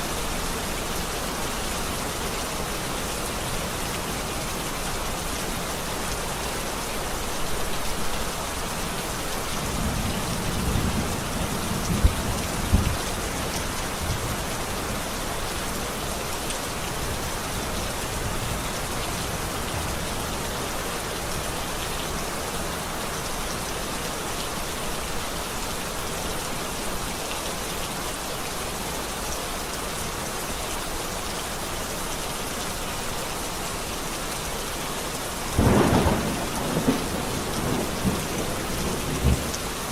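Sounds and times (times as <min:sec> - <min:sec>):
steady rain falling: 0:00.0 - 0:39.9
thunder rumbling: 0:09.8 - 0:13.4, 0:35.6 - 0:39.6
sharp thunder cracks: 0:35.6 - 0:39.5.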